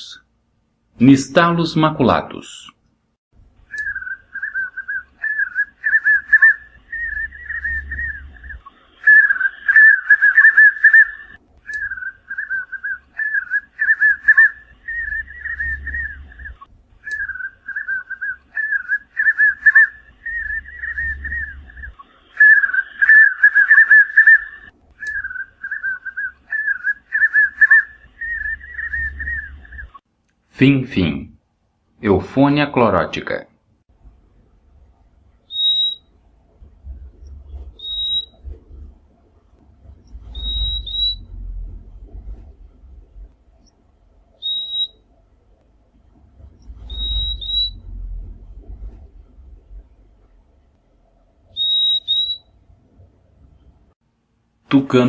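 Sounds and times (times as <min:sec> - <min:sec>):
bird singing whistled notes: 0:03.7 - 0:30.0, 0:35.5 - 0:36.1, 0:36.8 - 0:38.6, 0:40.0 - 0:41.5, 0:44.4 - 0:45.0, 0:46.6 - 0:49.0, 0:51.5 - 0:52.6.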